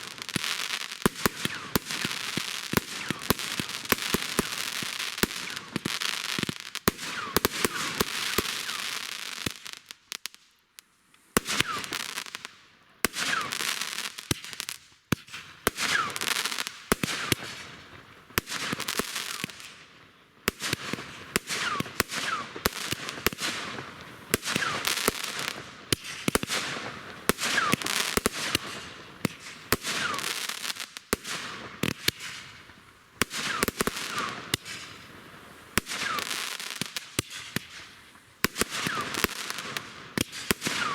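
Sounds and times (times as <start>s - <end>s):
firework bangs: 0.0s - 9.8s, 11.4s - 12.4s, 20.5s - 40.9s
firework crackling: 0.0s - 10.4s, 11.2s - 12.5s, 13.1s - 19.8s, 20.5s - 40.9s.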